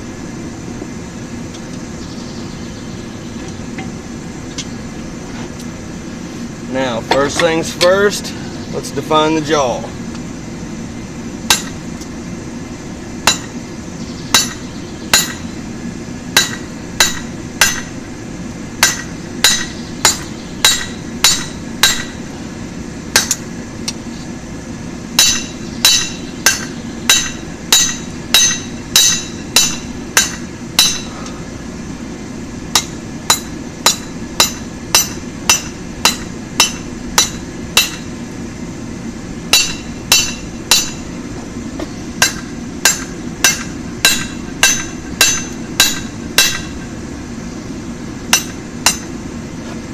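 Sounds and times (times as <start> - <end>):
steady low hum: 0.0 - 49.9
hammer striking steel on anvil: 7.1 - 8.0, 11.5 - 11.8, 13.3 - 13.6, 14.3 - 15.5, 16.4 - 17.9, 18.8 - 22.2, 23.2 - 23.4, 25.2 - 31.3, 32.7 - 38.1, 39.5 - 41.1, 42.2 - 46.8, 48.3 - 49.2.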